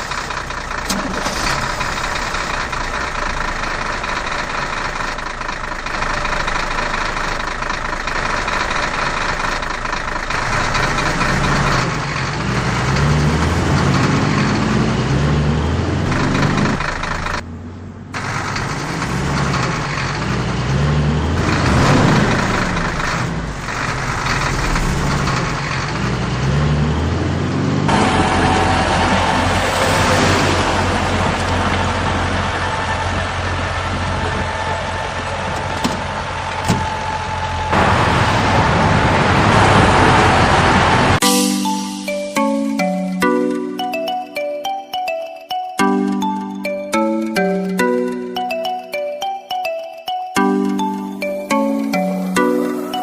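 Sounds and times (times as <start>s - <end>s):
truck engine revving: 0.0s - 41.2s.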